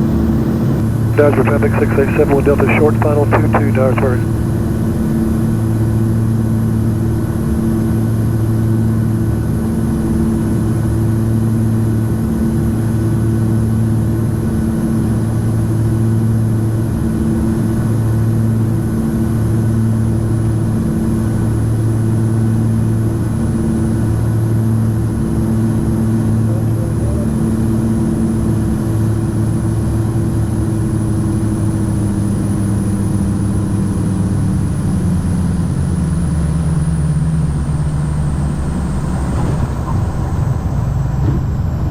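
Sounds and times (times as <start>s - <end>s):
propeller plane engines droning: 1.2s - 4.2s.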